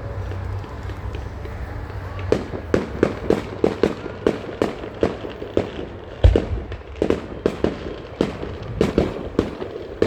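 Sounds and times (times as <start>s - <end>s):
fireworks bursting with sharp bangs: 1.1s - 10.0s
deep firework boom: 6.2s - 9.6s.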